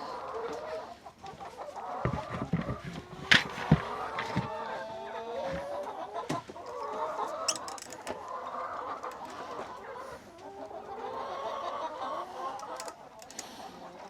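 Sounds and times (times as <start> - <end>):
chickens clucking: 0.0 - 14.0
sharp clicks: 7.4 - 8.2, 12.5 - 13.6.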